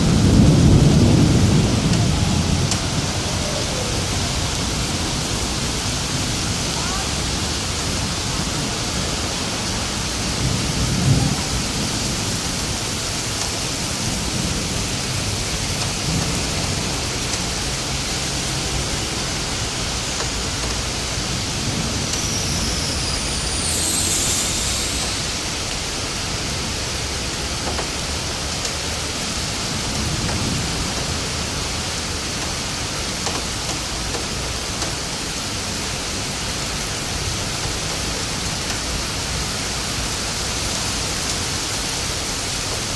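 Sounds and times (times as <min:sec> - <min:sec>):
rolls of thunder: 0:00.0 - 0:06.3, 0:10.1 - 0:19.0
heavy rain pouring: 0:00.0 - 0:42.9
high gliding whistle: 0:21.6 - 0:26.4.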